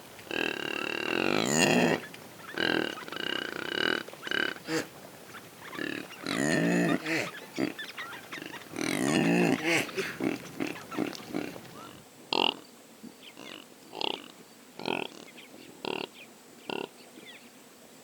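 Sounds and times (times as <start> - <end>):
impala calling: 0.0 - 12.6.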